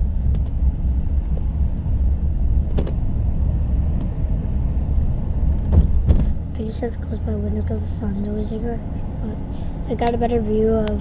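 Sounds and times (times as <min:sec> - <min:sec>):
car rumble inside cabin: 0:00.0 - 0:11.0.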